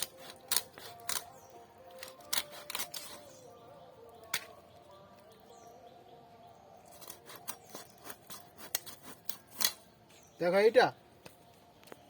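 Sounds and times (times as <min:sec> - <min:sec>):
blade cutting fish: 0:00.0 - 0:01.3, 0:07.0 - 0:09.8.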